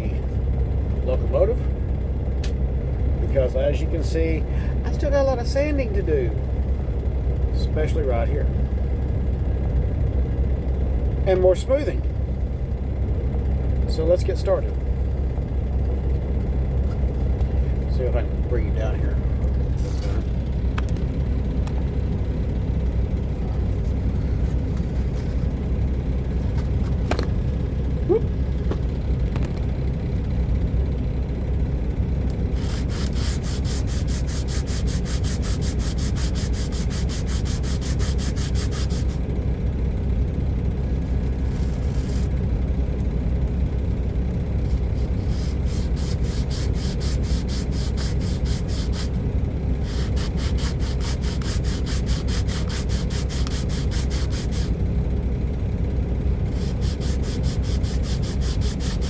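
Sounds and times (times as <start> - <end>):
steady low rumble: 0.0 - 59.0
hand sanding strokes: 32.5 - 39.2, 44.7 - 49.2, 49.8 - 54.8, 56.5 - 59.0.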